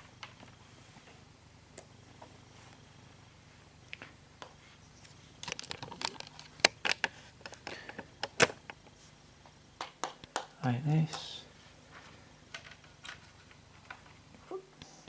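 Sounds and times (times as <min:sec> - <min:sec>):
plastic parts clicking: 0:05.4 - 0:08.8.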